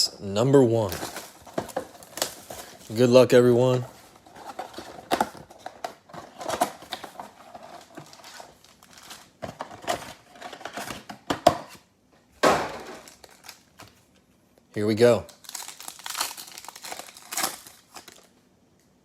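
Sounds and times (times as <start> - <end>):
plastic wrap crinkling: 0.8 - 10.9, 13.0 - 14.0, 15.3 - 18.4.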